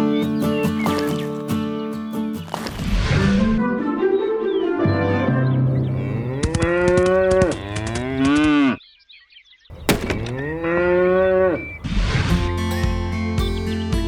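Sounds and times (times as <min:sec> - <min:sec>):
music: 0:00.0 - 0:02.5, 0:03.6 - 0:05.8, 0:12.2 - 0:14.0
cattle mooing: 0:05.7 - 0:08.8, 0:09.7 - 0:12.3.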